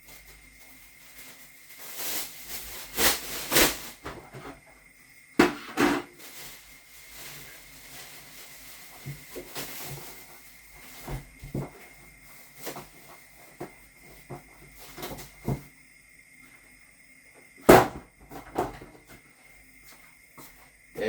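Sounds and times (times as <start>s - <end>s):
plastic bin liner rustling: 0.0s - 4.6s, 5.4s - 15.6s.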